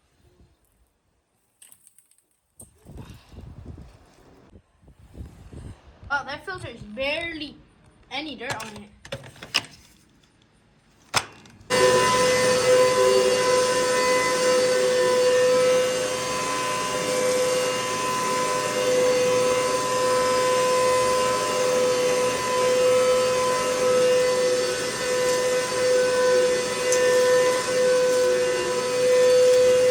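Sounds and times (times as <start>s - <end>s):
vacuum cleaner motor whining: 11.7s - 29.9s.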